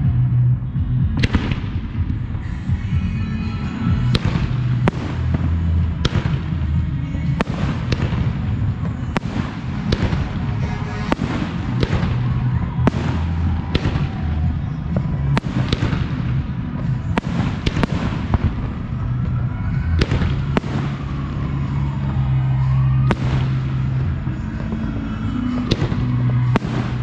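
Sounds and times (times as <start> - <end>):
low rumble of fireworks: 0.0 - 27.0.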